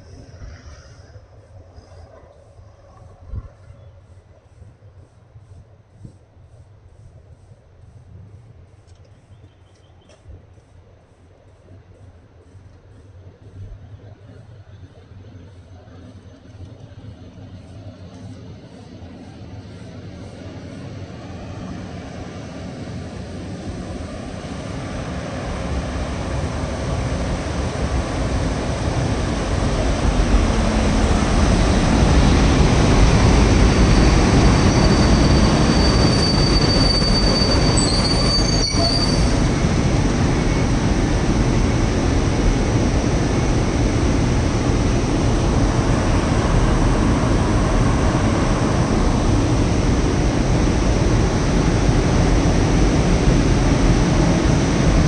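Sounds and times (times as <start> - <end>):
train coaches rumbling past: 10.0 - 55.0
thin high squeal: 33.9 - 39.4.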